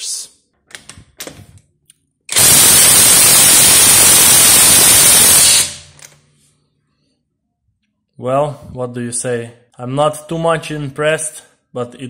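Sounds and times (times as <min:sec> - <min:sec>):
motor winding down: 0:02.3 - 0:05.8
impact wrench hammering: 0:02.3 - 0:06.0.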